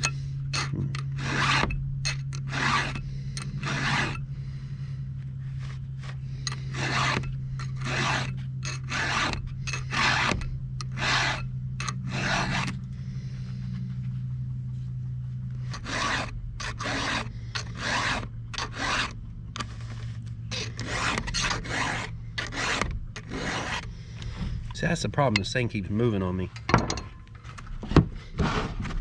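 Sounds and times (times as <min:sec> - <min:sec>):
file rasping on chainsaw chain: 0:00.0 - 0:04.2, 0:06.0 - 0:12.9, 0:15.7 - 0:19.2, 0:20.5 - 0:23.9
steady low hum: 0:00.0 - 0:29.0.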